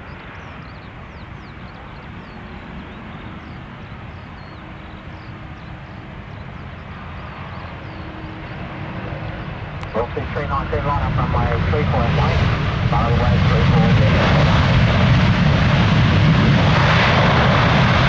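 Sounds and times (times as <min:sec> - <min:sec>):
jet engines rumbling: 0:09.8 - 0:18.0.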